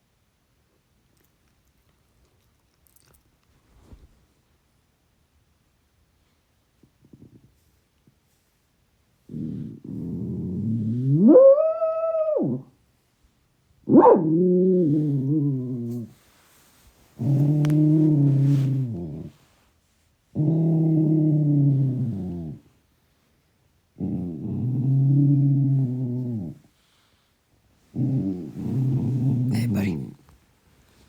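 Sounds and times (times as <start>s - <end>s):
dog growling howls: 10.0s - 12.7s, 13.9s - 16.1s.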